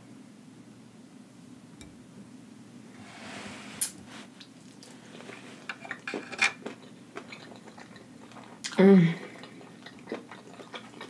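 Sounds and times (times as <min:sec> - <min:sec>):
soft hiss: 0:01.6 - 0:05.7
wet chewing and mouth smacks: 0:04.4 - 0:11.0.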